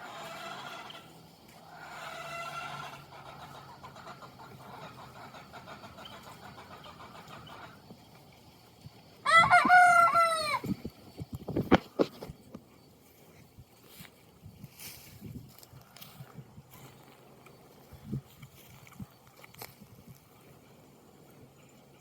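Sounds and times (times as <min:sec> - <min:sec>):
young rooster crowing: 0:00.0 - 0:01.1, 0:01.7 - 0:03.1, 0:09.2 - 0:10.8.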